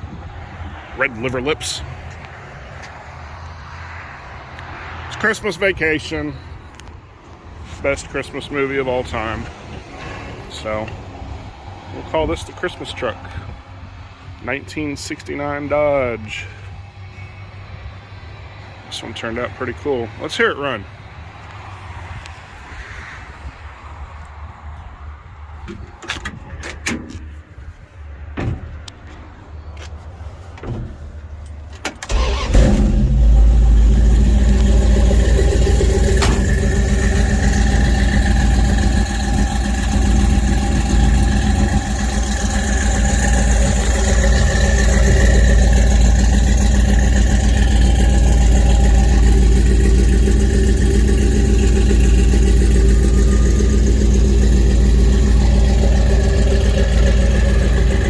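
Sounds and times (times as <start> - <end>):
truck engine starting and idling: 30.9 - 58.0.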